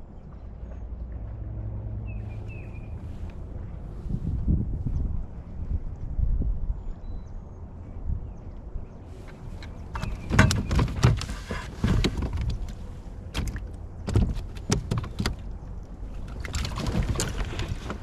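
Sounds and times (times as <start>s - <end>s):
wind rumble on microphone: 0.0s - 18.0s
sharp knocks and clunks: 10.0s - 12.7s, 13.4s - 15.5s.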